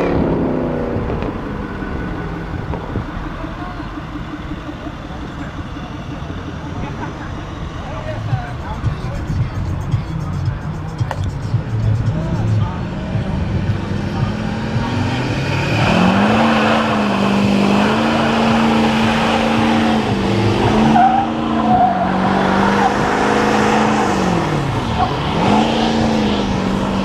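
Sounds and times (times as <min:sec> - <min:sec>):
car engine revving hard: 0:00.0 - 0:09.0, 0:11.5 - 0:27.0
tyres squealing: 0:14.9 - 0:26.3.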